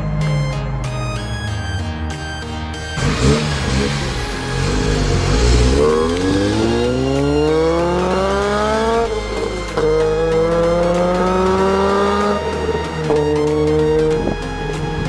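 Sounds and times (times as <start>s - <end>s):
car engine accelerating hard: 2.9s - 15.0s.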